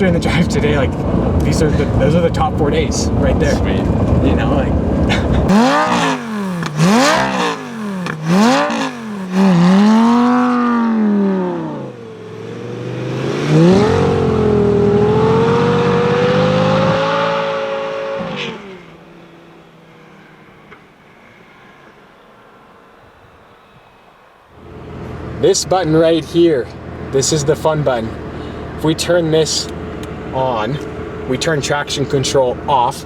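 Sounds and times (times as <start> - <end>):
sports car engine revving: 0.0 - 20.6.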